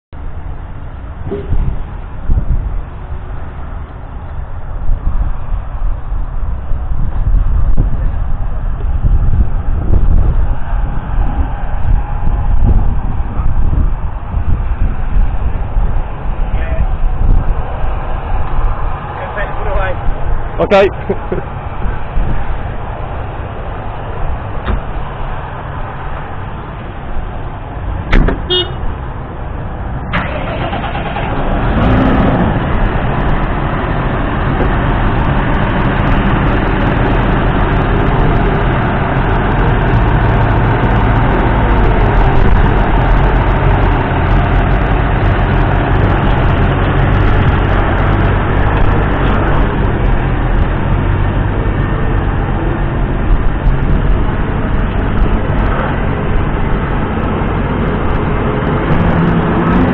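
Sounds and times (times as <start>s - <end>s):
diesel engine running: 0.1s - 59.9s.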